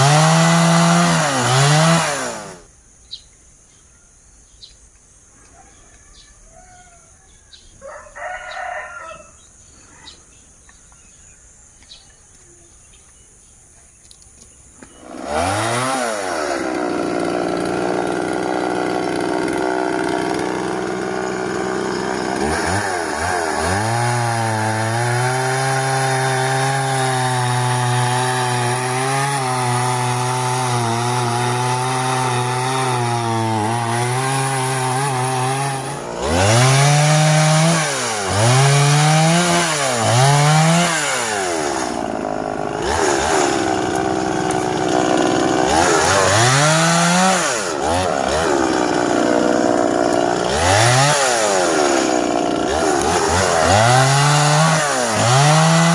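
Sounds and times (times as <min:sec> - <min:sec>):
chainsaw cutting wood: 0:00.0 - 0:02.7, 0:14.8 - 0:55.9.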